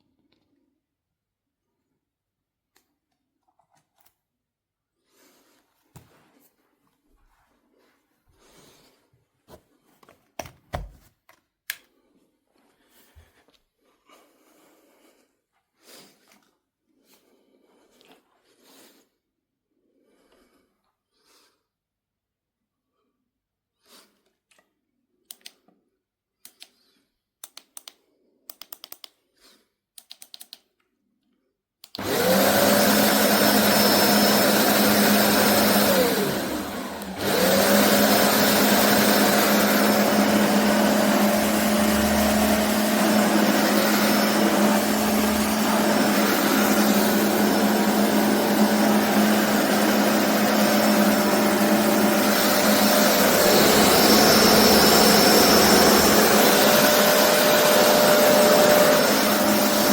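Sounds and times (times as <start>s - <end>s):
carpet cleaner suction motor whine: 32.0s - 59.9s.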